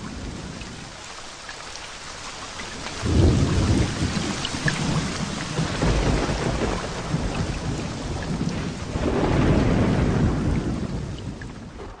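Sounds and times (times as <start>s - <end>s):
heavy rain pouring: 0.0s - 12.0s
low thunder rumble: 3.0s - 12.0s.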